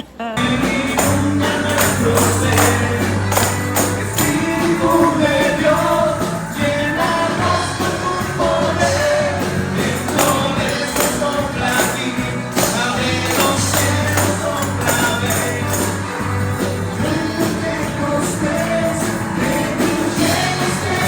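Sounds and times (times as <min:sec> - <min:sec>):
voices singing: 0:00.0 - 0:21.0
upbeat worship music: 0:00.3 - 0:21.0
tambourine: 0:00.4 - 0:21.0.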